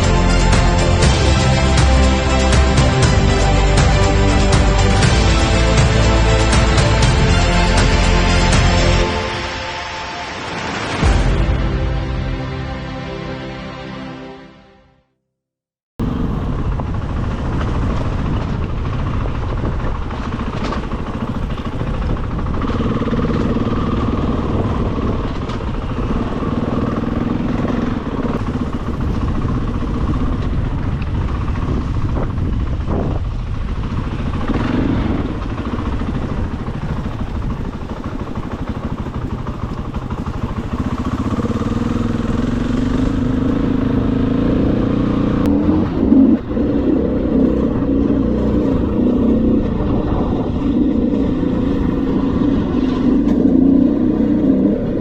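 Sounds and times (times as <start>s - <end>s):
dirt bike engine revving: 16.0s - 55.0s.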